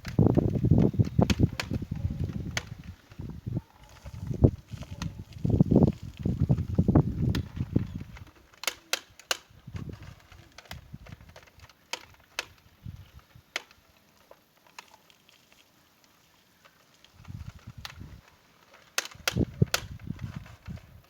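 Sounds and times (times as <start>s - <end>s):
sharp clicks and knocks: 6.5s - 12.6s.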